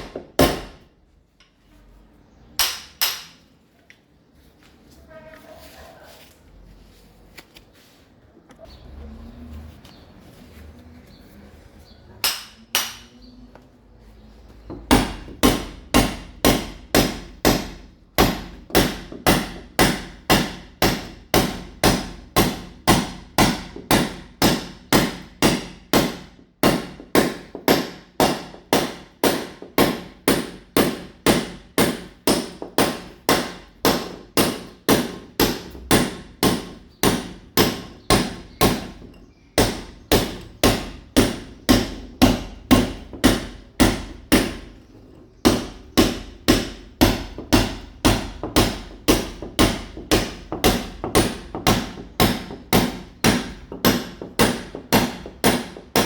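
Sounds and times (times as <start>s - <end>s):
hammer chipping a wall: 0.0s - 0.9s, 14.7s - 56.0s.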